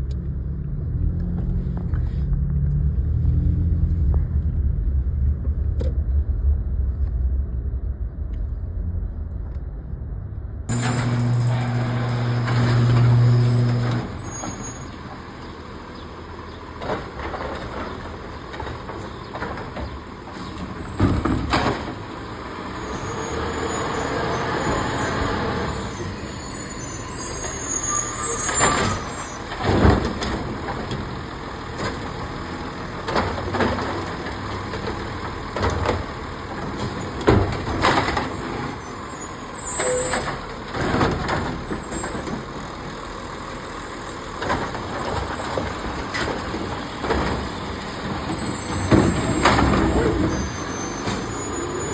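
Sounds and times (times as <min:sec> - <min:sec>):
trash can clanking and banging: 0:10.7 - 0:14.8, 0:16.8 - 0:22.3, 0:28.4 - 0:32.3, 0:32.9 - 0:38.7, 0:39.9 - 0:42.5, 0:44.4 - 0:51.9
hydraulics moving: 0:10.7 - 0:43.1, 0:44.0 - 0:51.9
garbage truck engine running: 0:10.7 - 0:51.9.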